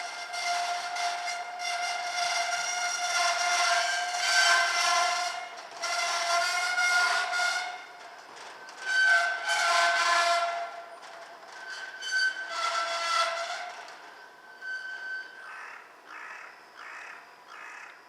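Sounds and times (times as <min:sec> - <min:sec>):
crows cawing: 0:15.5 - 0:18.0.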